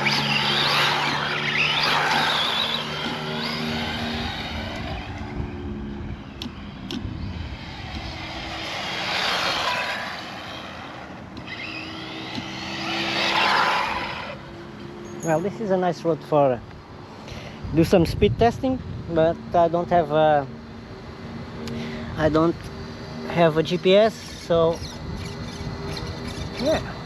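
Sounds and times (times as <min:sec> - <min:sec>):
rc car driving past: 0:00.0 - 0:15.4, 0:23.1 - 0:27.0.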